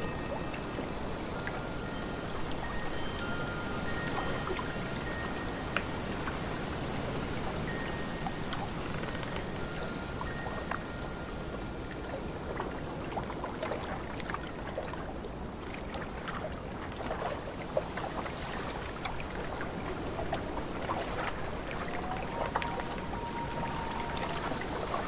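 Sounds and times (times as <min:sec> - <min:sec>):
small water drips: 0:00.0 - 0:25.0
lake water lapping: 0:11.8 - 0:25.0.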